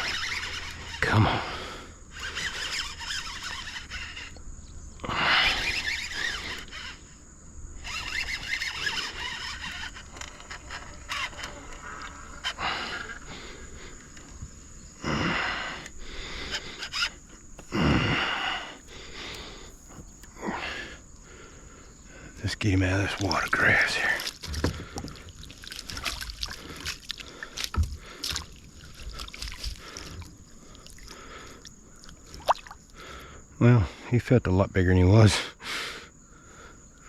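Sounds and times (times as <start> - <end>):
fish splashing in water: 23.2 - 32.9.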